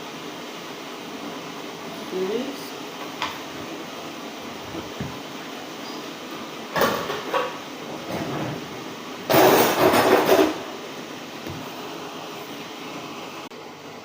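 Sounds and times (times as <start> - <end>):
kitchen utensils clattering: 6.7 - 8.7, 9.3 - 10.7.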